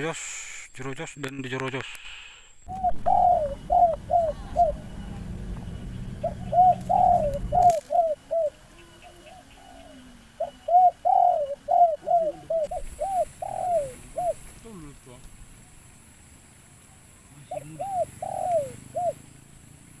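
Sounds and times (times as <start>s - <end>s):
low steady rumble: 2.7s - 10.5s
dove cooing: 2.7s - 15.9s, 16.8s - 20.0s.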